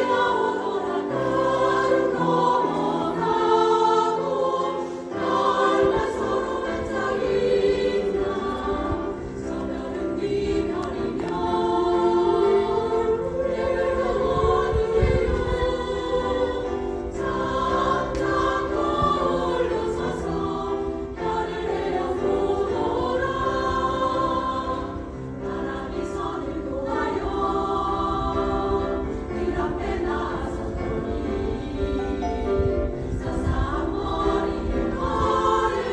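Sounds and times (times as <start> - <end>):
choir breaths: 0.0 - 35.9
choir singing: 0.0 - 35.9.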